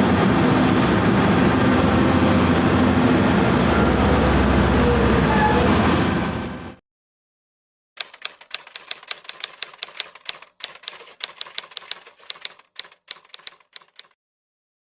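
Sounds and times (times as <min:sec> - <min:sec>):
excavator engine: 0:00.0 - 0:06.8
rapid key clicks: 0:08.0 - 0:14.2.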